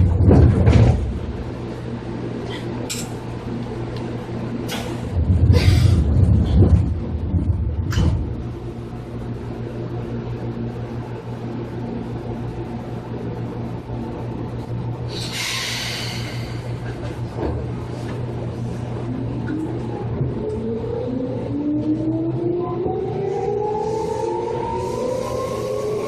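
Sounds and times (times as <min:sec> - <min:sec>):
electric train humming: 0:00.0 - 0:26.0.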